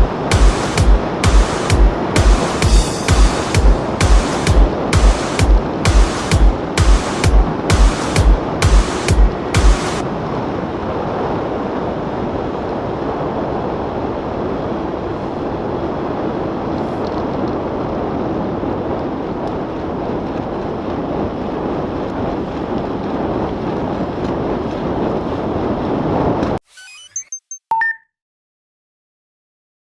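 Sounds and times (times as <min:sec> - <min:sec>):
wind on microphone: 0:00.0 - 0:26.6.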